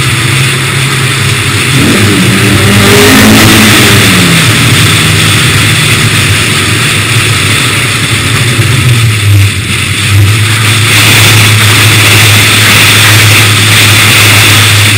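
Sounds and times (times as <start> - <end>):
car engine steady low note: 0.0 - 14.9.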